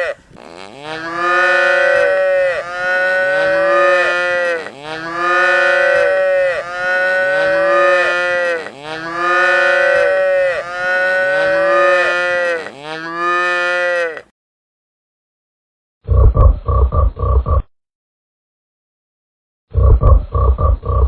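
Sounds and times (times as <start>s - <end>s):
cows mooing: 0.0s - 14.3s.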